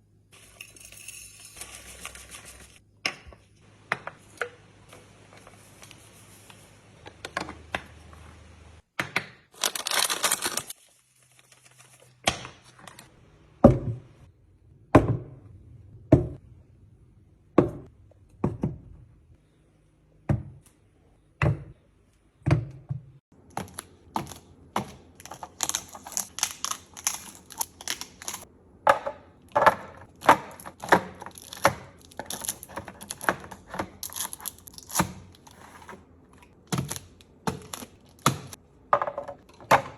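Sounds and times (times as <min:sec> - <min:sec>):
packaging rustling: 0:09.6 - 0:12.2
kitchen items knocking and clacking: 0:22.4 - 0:39.9.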